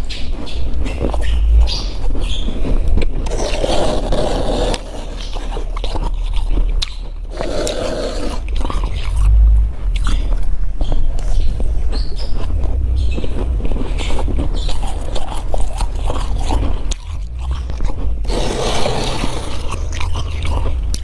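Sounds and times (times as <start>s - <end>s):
rasping scrapes on frost: 3.3s - 5.6s, 7.3s - 8.5s, 18.3s - 19.7s.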